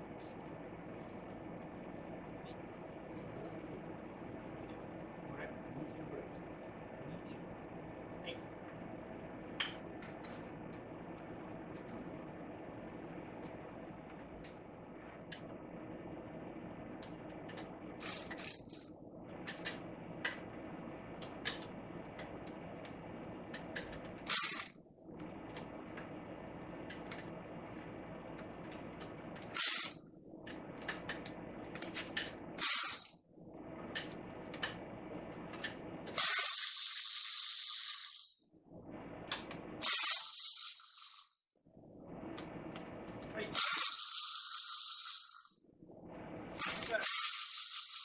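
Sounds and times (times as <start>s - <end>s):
hissing spray blasts: 29.6s - 30.0s, 32.6s - 33.1s, 36.2s - 38.4s, 39.8s - 41.2s, 43.5s - 45.6s, 46.6s - 48.0s.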